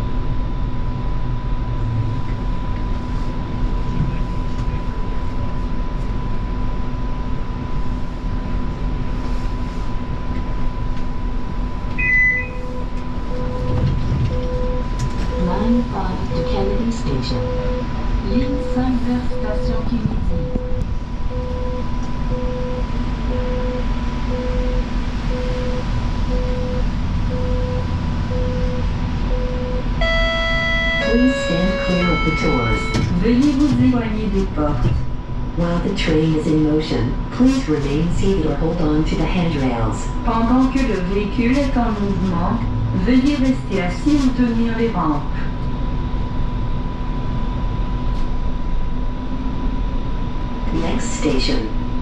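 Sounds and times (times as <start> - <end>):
hum and rumble of ventilation: 0.0 - 52.0
short low beeps: 11.9 - 15.6, 16.3 - 16.7, 17.3 - 17.9, 18.5 - 33.1.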